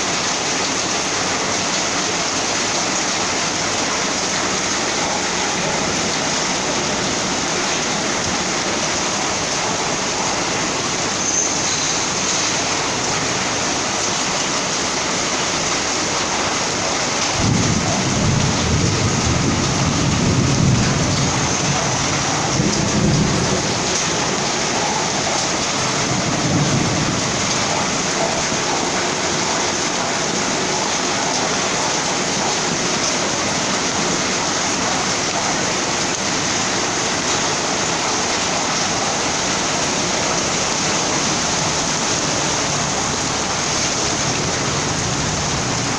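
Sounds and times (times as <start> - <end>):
heavy rain pouring: 0.0 - 45.9
thunder rumbling: 17.3 - 29.3, 40.3 - 45.9.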